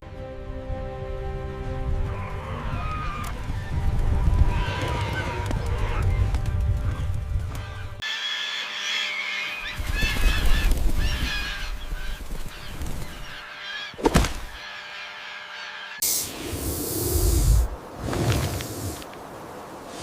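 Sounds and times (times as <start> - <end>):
birds calling: 2.0 - 17.8.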